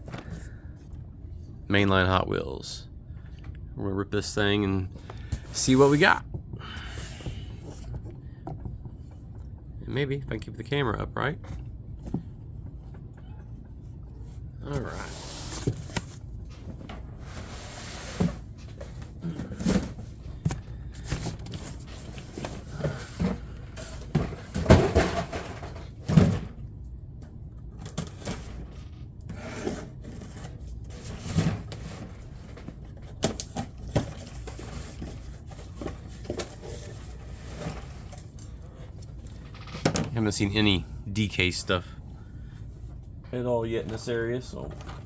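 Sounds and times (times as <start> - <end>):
knocks and thumps: 18.2 - 26.5.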